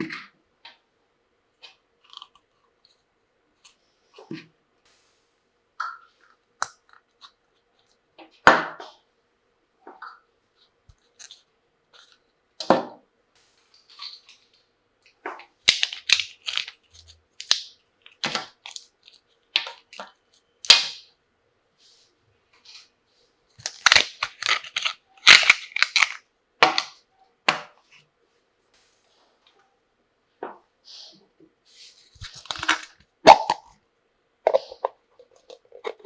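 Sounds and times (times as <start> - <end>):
toy tea cups clacking: 23.6 - 26.2.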